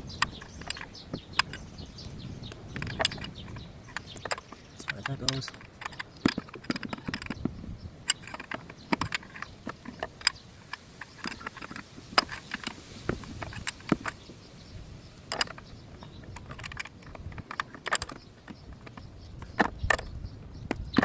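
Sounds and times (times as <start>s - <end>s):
hand tools clicking and knocking: 0.0s - 21.0s.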